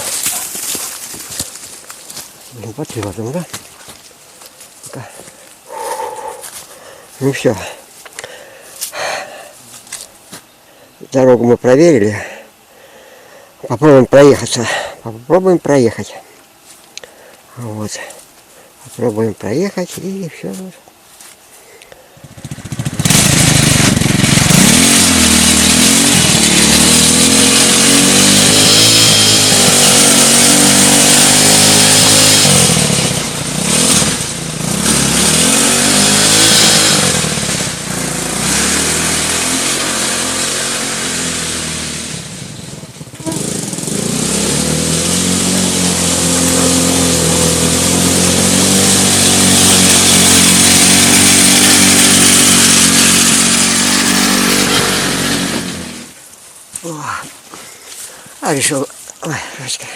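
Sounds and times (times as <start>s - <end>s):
quad bike engine revving: 22.2s - 56.2s.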